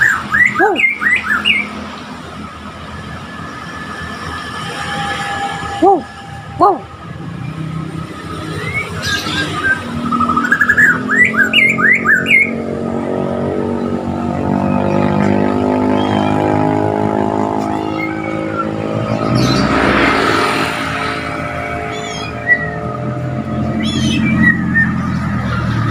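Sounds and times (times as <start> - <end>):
bird chirping: 0.0 - 2.1, 21.7 - 25.9
vehicle engine running: 9.9 - 25.9.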